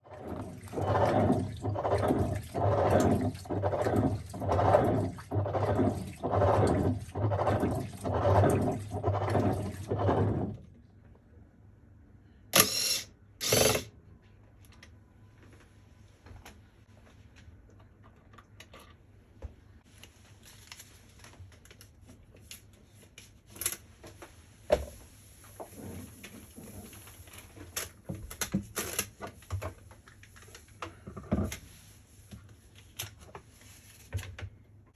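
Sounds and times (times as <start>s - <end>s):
washing machine rhythmic knocking: 0.0s - 10.7s
low motor hum: 0.1s - 10.7s.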